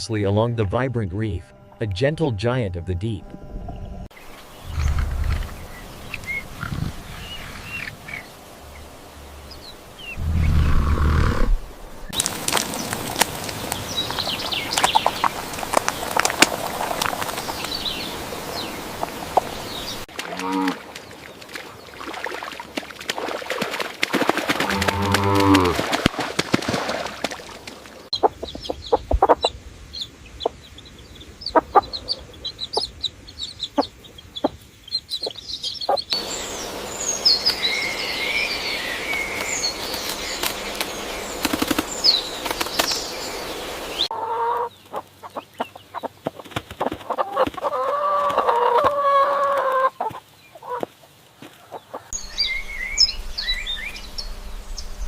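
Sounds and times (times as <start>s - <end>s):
chickens clucking: 28.2s - 29.6s, 31.4s - 36.3s, 44.0s - 52.2s.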